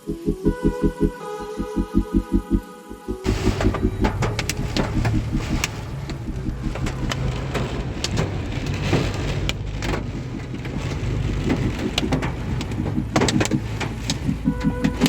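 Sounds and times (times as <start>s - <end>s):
car rumbling on the road: 3.1s - 15.0s
hailstones hitting a car: 3.3s - 15.0s
heavy rain on a car: 3.3s - 15.0s.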